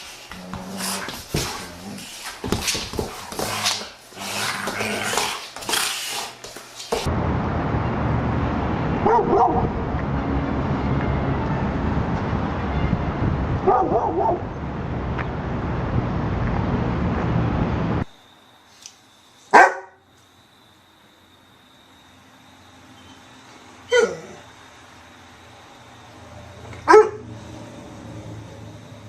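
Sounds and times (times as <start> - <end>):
dog barking: 9.0 - 9.7, 13.6 - 14.4, 19.5 - 20.0, 26.8 - 27.3.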